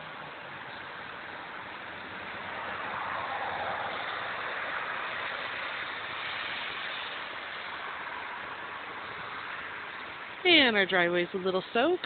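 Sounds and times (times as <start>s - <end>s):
water rushing in flooded creek: 0.0s - 12.0s.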